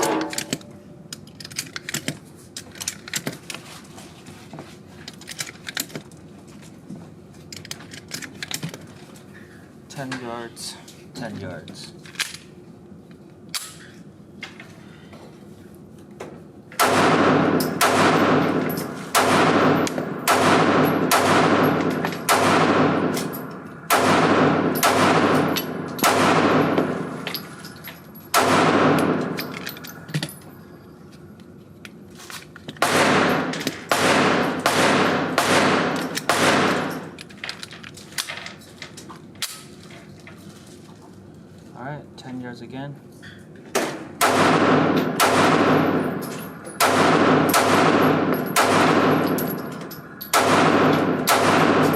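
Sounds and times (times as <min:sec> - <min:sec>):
distant gunshots: 0:16.8 - 0:23.2, 0:23.9 - 0:27.1, 0:28.3 - 0:29.4, 0:32.8 - 0:36.9, 0:44.2 - 0:46.1, 0:46.8 - 0:49.2, 0:50.3 - 0:51.9
pistol shots echoing: 0:16.8 - 0:27.2, 0:28.3 - 0:29.5, 0:32.8 - 0:37.0, 0:44.2 - 0:51.9.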